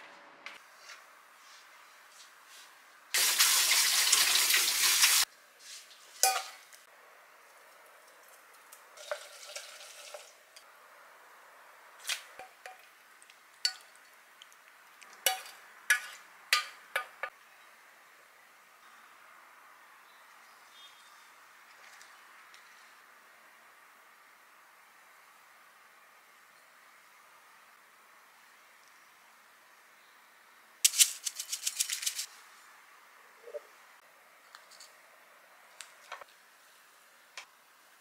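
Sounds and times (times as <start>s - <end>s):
dishes and utensils clinking: 6.2s - 6.6s.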